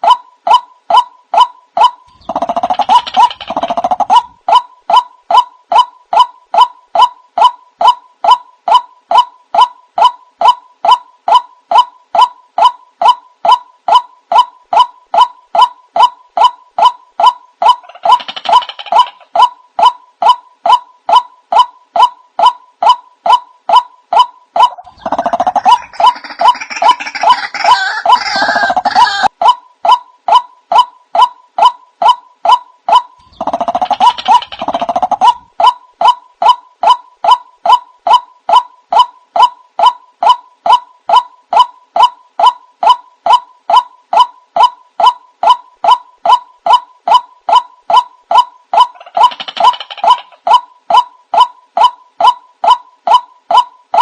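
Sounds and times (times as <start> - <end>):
waterhen calls: 22.0 - 30.0.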